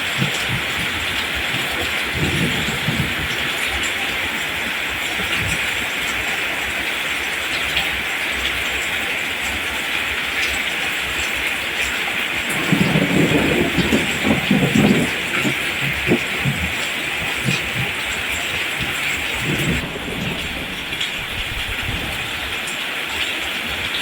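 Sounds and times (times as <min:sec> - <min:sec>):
steady rain falling: 0:00.0 - 0:24.0
low rumble: 0:19.4 - 0:22.7.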